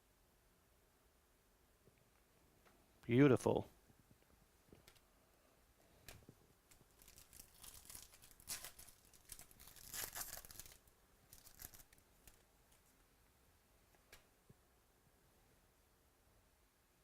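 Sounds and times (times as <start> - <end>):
card pack wrapper tearing and crinkling: 6.8 - 12.4.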